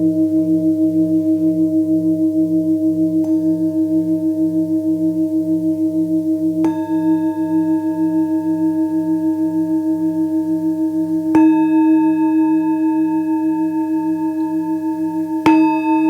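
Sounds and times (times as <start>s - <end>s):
singing bowl struck ringing: 6.6s - 16.0s.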